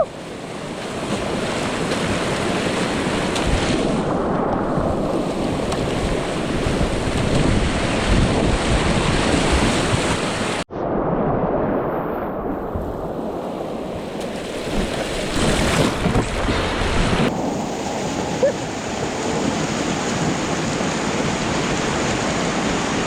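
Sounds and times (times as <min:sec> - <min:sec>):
wind buffeting microphone: 0:00.9 - 0:23.0.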